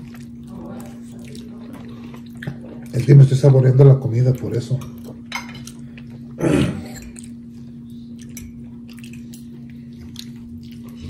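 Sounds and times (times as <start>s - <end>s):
wet chewing sounds: 0.0s - 3.1s, 7.0s - 11.0s
steady low hum: 0.0s - 11.0s.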